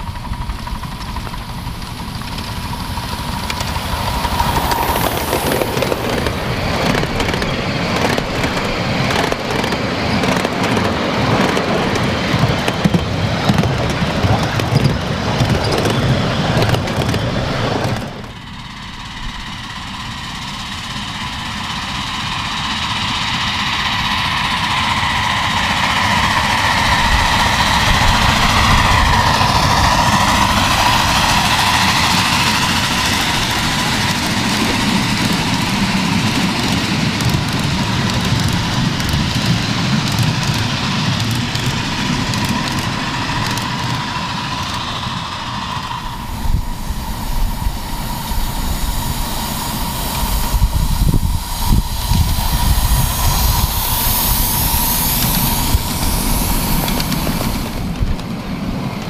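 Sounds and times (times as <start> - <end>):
clicks of train on track: 0.0 - 59.0
miniature train running: 0.0 - 59.0.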